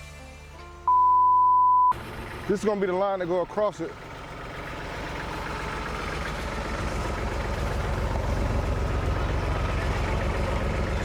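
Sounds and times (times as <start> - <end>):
heavy engine running: 1.9 - 11.0.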